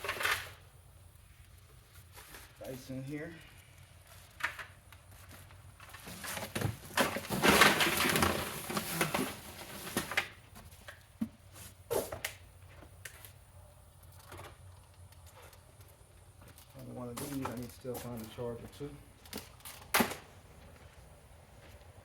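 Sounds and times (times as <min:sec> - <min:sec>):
packaging rustling and crinkling: 0:05.2 - 0:10.4.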